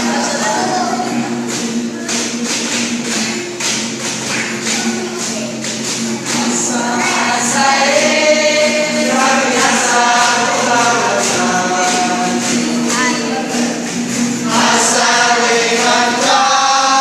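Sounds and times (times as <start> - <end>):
steady percussion beat: 0.0 - 17.0
group of voices chanting: 14.4 - 17.0.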